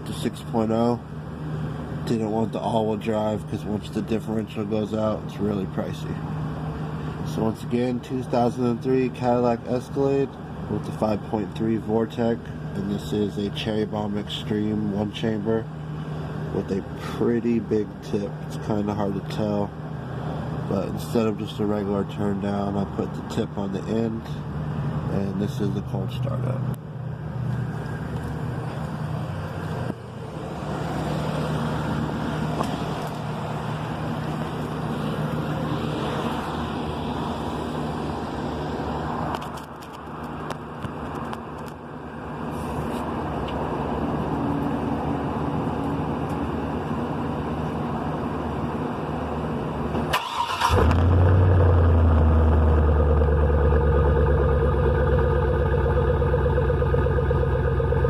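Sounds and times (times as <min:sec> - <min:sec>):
car engine starting and idling: 0:49.7 - 0:58.0.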